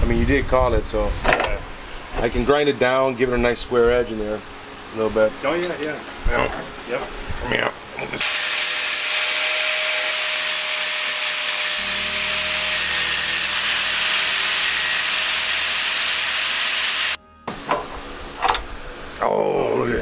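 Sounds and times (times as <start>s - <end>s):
grinder grinding sheet metal: 8.2s - 17.2s.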